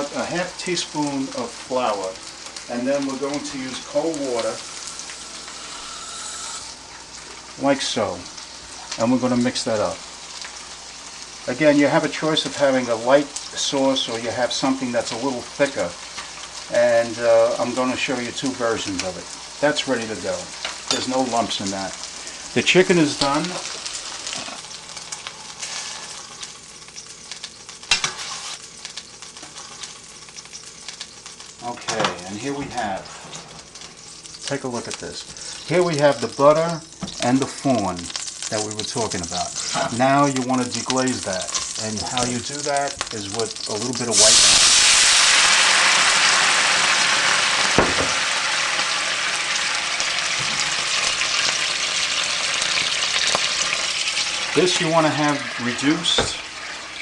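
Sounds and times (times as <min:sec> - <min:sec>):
fat sizzling and crackling: 0:00.0 - 0:57.0
sharp knock: 0:47.8 - 0:48.2.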